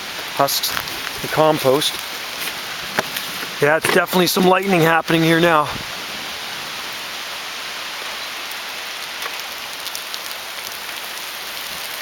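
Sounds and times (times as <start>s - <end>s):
heavy rain falling: 0.0s - 12.0s
close raindrop hits: 8.5s - 12.0s.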